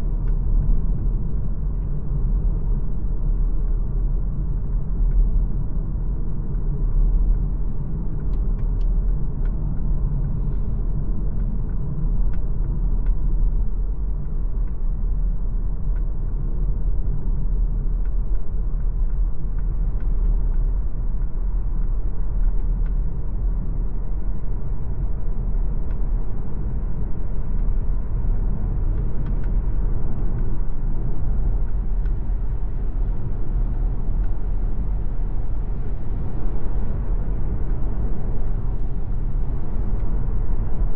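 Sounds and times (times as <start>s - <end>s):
road and tyre noise: 0.0s - 40.9s
faint tick: 18.0s - 23.0s.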